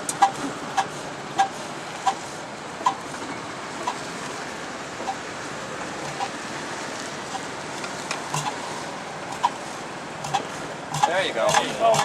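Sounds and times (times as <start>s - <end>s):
tractor engine knocking: 10.2s - 12.0s.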